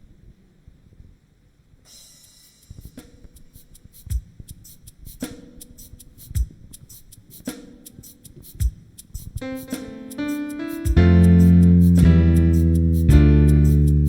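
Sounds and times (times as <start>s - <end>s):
snare drum: 1.9s - 12.3s
hi-hat ticks: 1.9s - 14.0s
bass drum: 10.9s - 14.0s.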